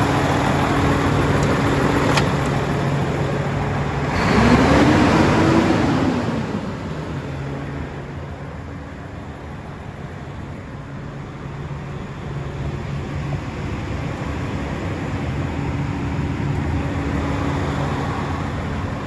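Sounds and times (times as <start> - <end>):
diesel truck engine revving and idling: 0.0 - 10.6.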